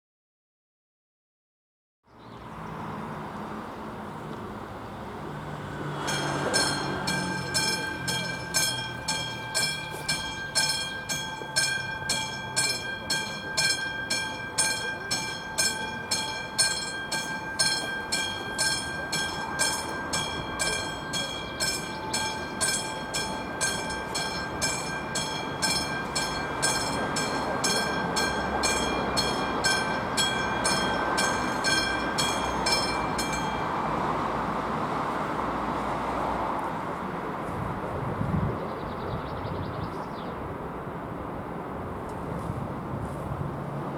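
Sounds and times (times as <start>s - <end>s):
level crossing bell ringing: 6.0s - 34.4s.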